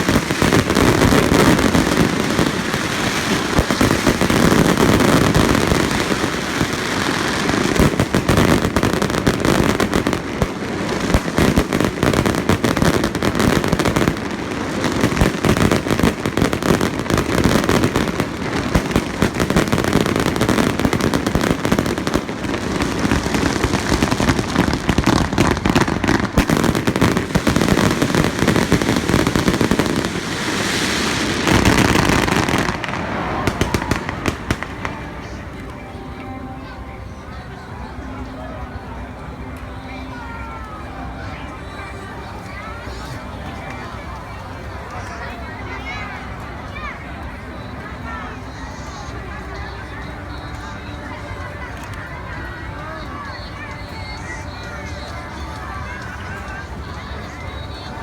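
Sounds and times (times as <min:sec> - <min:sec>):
fireworks bursting and crackling: 0:00.0 - 0:36.3.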